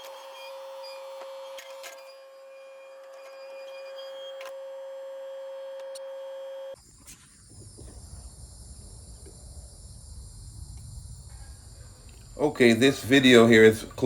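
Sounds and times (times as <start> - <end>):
high-pitched hum: 0.0 - 14.0
insects chirring: 6.7 - 14.0.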